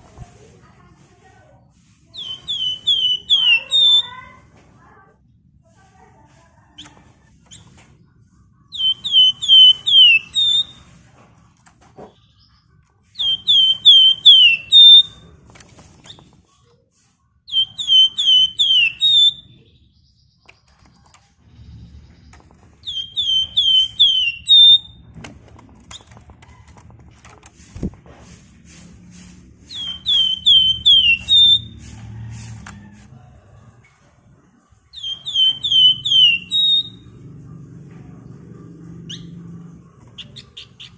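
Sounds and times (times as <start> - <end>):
songbird whistling: 2.2 - 4.2, 8.7 - 10.8, 13.2 - 15.2, 17.5 - 19.7, 22.8 - 25.0, 29.7 - 31.8, 34.9 - 37.0
low hum: 36.9 - 40.4.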